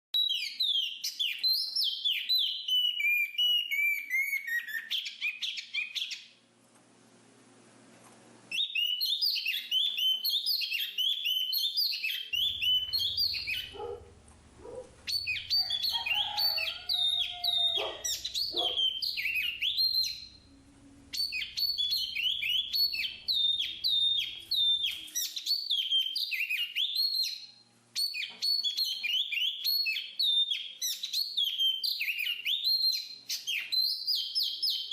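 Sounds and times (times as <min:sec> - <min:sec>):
bird rapid high chirping: 0:08.5 - 0:34.9
bird low whistled notes: 0:08.6 - 0:14.0, 0:15.1 - 0:27.3.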